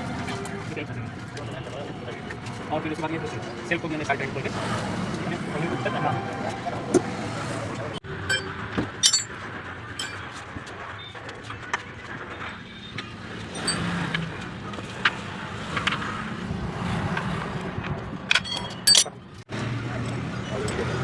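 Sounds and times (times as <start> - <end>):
hand tools clinking on metal: 8.3 - 9.4, 10.0 - 10.2, 13.5 - 14.3, 18.3 - 19.2.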